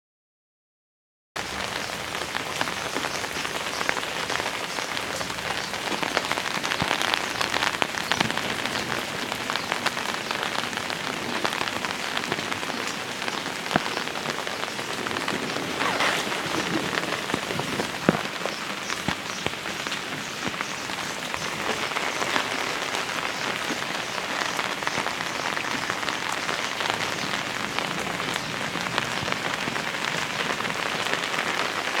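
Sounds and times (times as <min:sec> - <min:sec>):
heavy rain on hard surfaces: 0:01.4 - 0:32.0.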